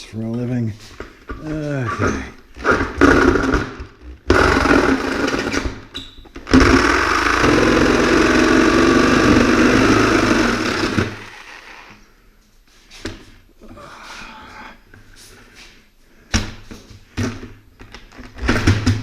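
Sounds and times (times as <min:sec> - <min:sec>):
reciprocating saw cutting: 0:06.6 - 0:11.9.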